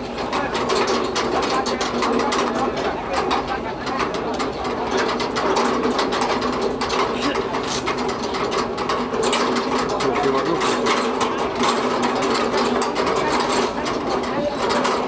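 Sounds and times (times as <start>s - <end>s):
machinery clattering: 0.0s - 15.0s.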